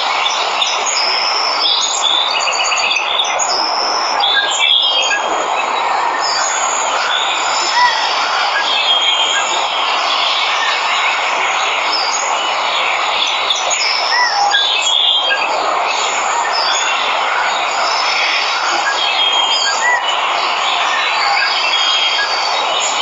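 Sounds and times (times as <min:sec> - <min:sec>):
birds chirping and whistling: 0:00.6 - 0:11.1, 0:17.9 - 0:20.2.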